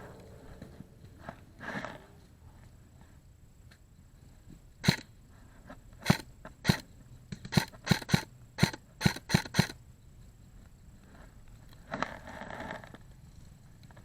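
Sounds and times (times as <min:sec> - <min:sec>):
airsoft gun shots: 0:04.8 - 0:05.0, 0:06.0 - 0:06.8, 0:07.5 - 0:09.8.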